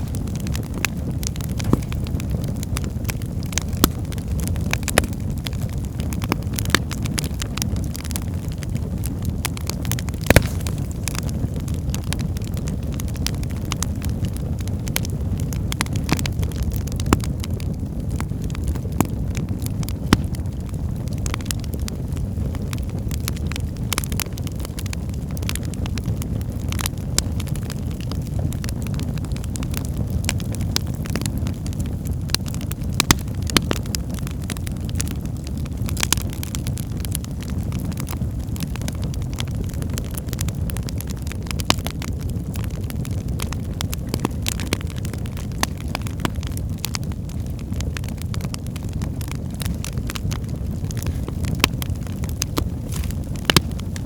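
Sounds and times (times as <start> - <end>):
fire flames rumbling: 0.0 - 54.0
logs crackling and popping: 0.0 - 54.0.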